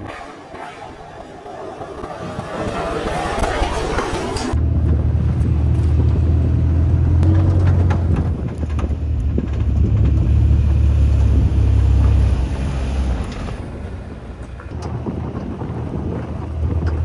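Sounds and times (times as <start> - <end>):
motorbike engine rumble: 0.0 - 17.0
wind buffeting microphone: 0.0 - 17.0.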